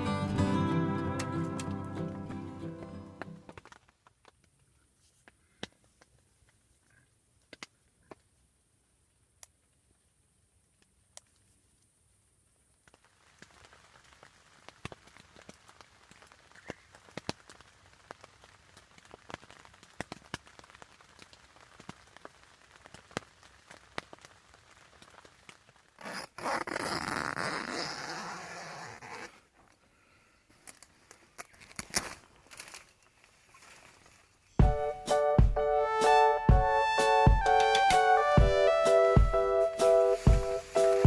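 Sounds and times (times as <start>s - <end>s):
zipper being pulled: 26.0s - 29.8s, 30.7s - 34.4s.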